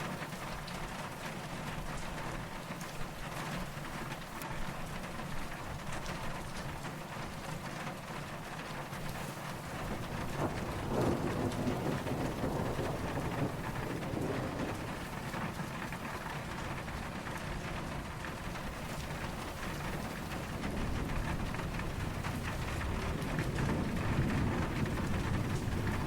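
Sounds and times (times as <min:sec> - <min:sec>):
steady rain falling: 0:00.0 - 0:26.0
distant thunder rumbling: 0:09.1 - 0:26.0.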